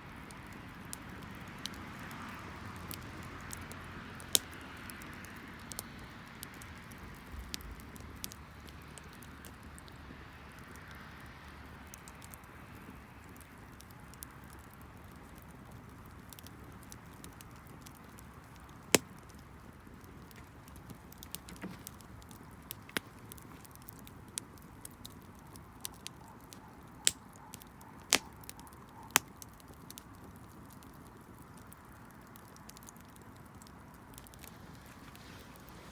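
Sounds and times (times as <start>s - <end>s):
wood bonfire crackling: 0.0s - 35.9s
faint steady hiss: 31.6s - 35.9s.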